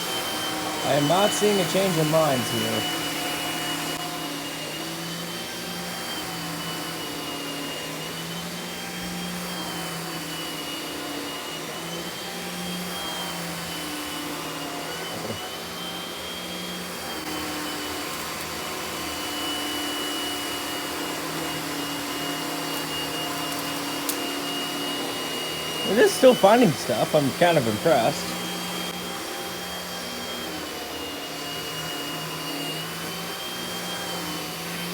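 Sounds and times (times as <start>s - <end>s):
vacuum cleaner on carpet: 0.0s - 34.9s.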